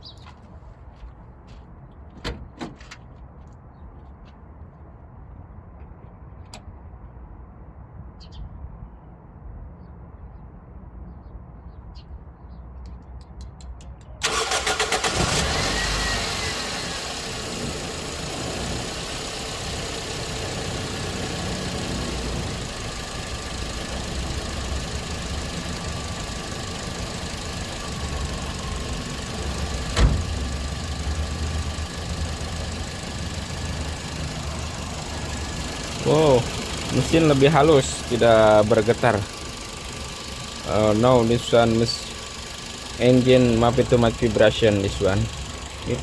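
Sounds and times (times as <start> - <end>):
car engine cranking and idling: 13.6 - 46.0.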